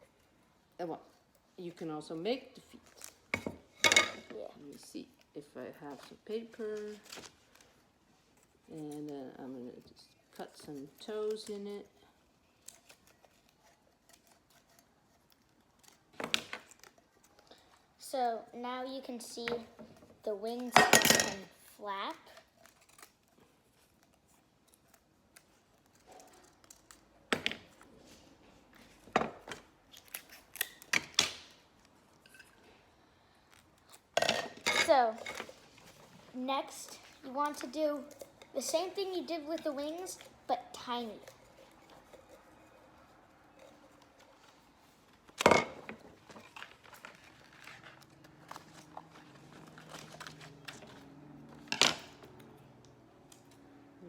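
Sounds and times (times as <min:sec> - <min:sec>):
scissors snipping paper: 0:08.3 - 0:11.8, 0:12.5 - 0:17.7, 0:22.2 - 0:27.2
paper rustling: 0:46.0 - 0:52.5.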